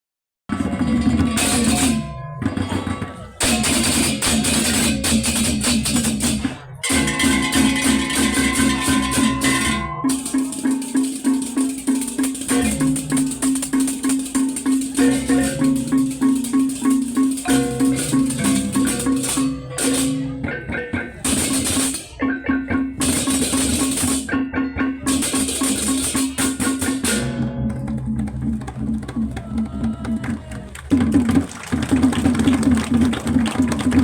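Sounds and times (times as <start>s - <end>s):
tuned gongs and drums: 0.5s - 30.2s
clashing cymbals: 3.4s - 20.4s.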